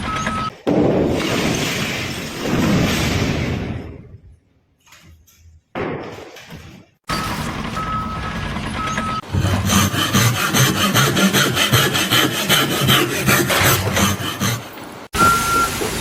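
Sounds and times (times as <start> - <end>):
fast rasping strokes: 9.2 - 14.8
short beeps: 15.2 - 15.8.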